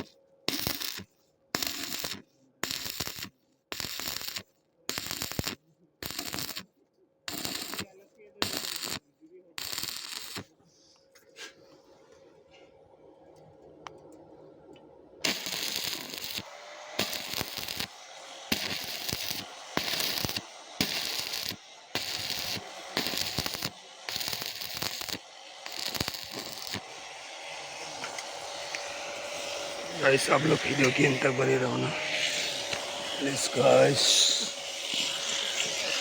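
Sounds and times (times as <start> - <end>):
arc welding crackling: 0.0 - 6.7, 7.3 - 10.6, 15.2 - 36.0.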